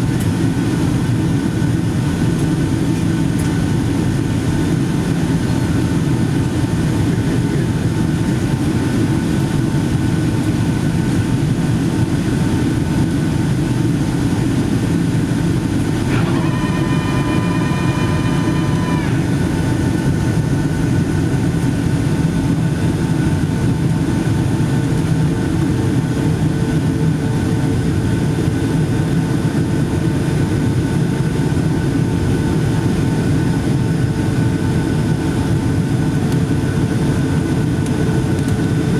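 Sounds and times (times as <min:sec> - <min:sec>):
airliner cabin engine noise: 0:00.0 - 0:38.9
held multi-pitch tone: 0:16.0 - 0:20.8.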